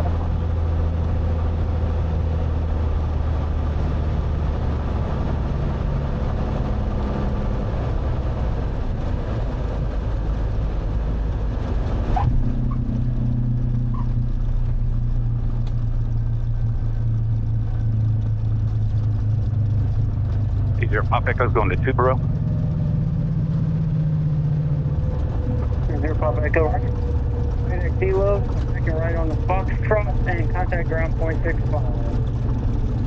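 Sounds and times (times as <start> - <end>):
piston engine cabin noise: 0.0 - 33.0
short squeak: 12.2 - 12.9, 13.8 - 14.2.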